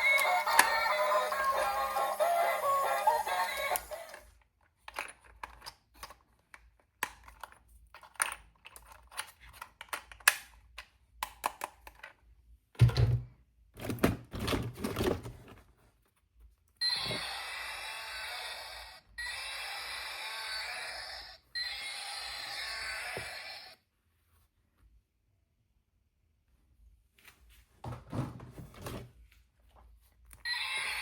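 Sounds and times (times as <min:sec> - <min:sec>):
toy packaging crinkling: 0:00.0 - 0:05.4.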